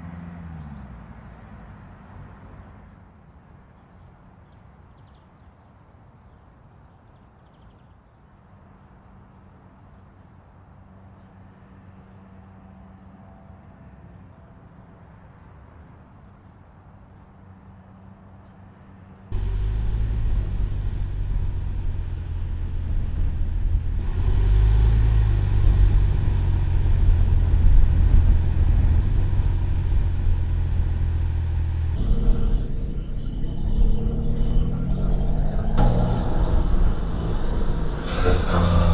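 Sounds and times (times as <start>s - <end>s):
car engine rumbling under load: 19.3s - 38.9s.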